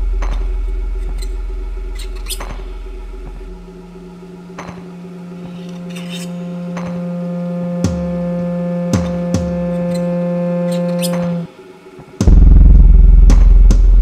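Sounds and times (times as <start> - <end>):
held drone tones: 0.0 - 14.0.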